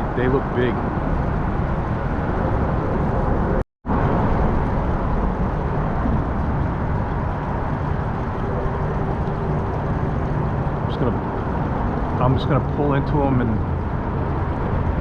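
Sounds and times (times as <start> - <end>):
motor kayak rushing: 0.0 - 15.0
wind on microphone: 0.0 - 15.0.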